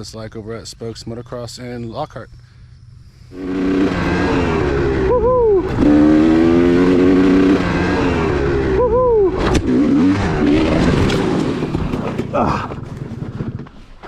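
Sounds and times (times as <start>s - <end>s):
dirt bike engine revving: 3.3s - 12.3s.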